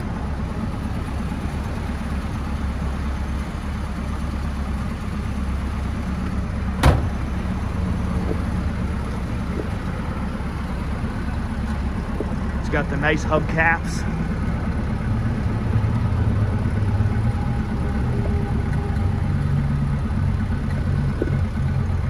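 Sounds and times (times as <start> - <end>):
car engine idling: 0.0 - 22.0
sharp knock: 6.8 - 7.3.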